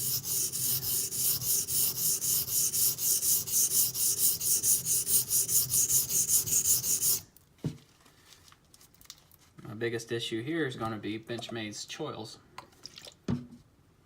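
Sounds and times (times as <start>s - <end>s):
knife blade scraping on whetstone: 0.0s - 7.3s.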